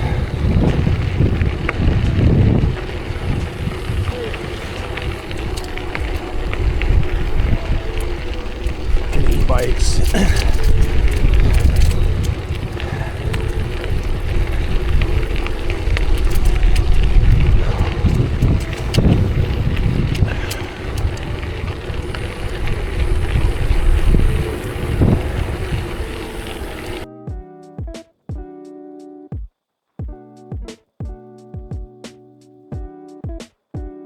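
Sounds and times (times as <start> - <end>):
bicycle clicks and rattles: 0.0 - 27.1
wind buffeting microphone: 0.0 - 27.1.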